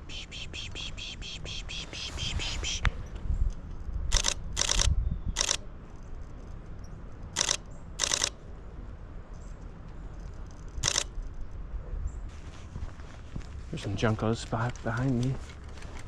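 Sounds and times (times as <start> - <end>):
camera shutter rapid clicks: 4.1 - 5.7, 7.3 - 8.4, 10.7 - 11.2.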